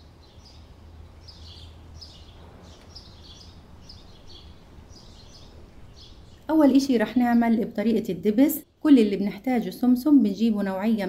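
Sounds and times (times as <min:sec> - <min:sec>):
small bird chirping: 0:00.0 - 0:07.6
low steady hum: 0:00.0 - 0:11.0.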